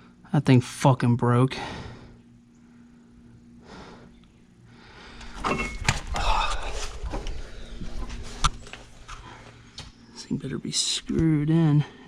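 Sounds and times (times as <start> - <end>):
metal tools clattering: 5.2 - 6.2.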